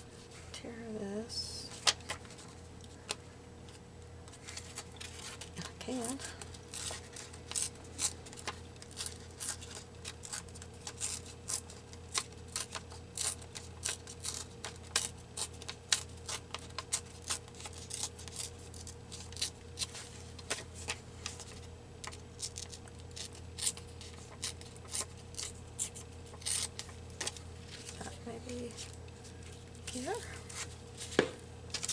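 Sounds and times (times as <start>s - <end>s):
paper rustling: 4.3s - 6.0s, 25.8s - 31.9s
scissors snipping paper: 5.0s - 27.4s.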